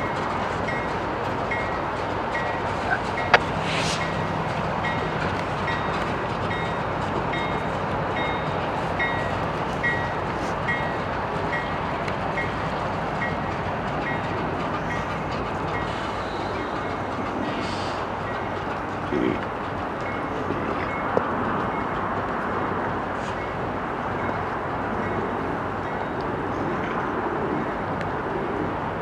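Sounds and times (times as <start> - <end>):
locomotive bell ringing: 0.0 - 4.2, 4.8 - 17.1
train wheels rumbling on rail: 0.0 - 29.0.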